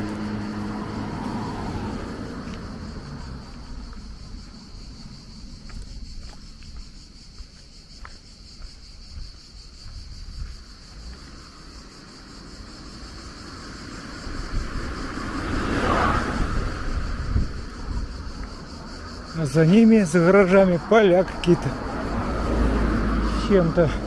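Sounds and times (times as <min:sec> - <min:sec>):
insects chirring: 0:00.0 - 0:24.0
wind rumble on microphone: 0:08.9 - 0:11.1, 0:13.1 - 0:19.4
rushing noise: 0:13.2 - 0:19.7.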